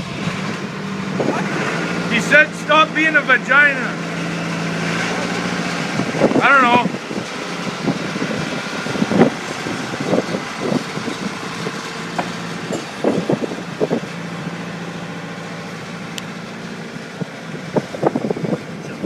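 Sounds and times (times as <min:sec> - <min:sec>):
steady mechanical hum: 0:00.0 - 0:19.0
knocks and clatters: 0:10.2 - 0:14.1.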